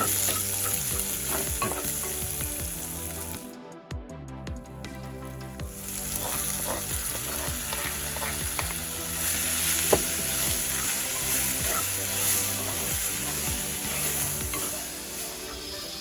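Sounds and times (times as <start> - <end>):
spoon scraping and tapping pan: 0.0 - 2.3, 6.2 - 14.8
food sizzling in a pan: 0.0 - 3.5, 5.7 - 16.0.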